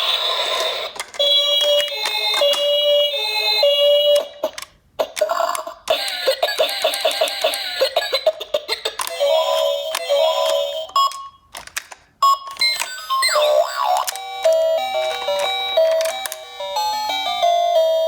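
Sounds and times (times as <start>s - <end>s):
toy electronic sirens: 5.0s - 11.4s, 12.2s - 18.0s.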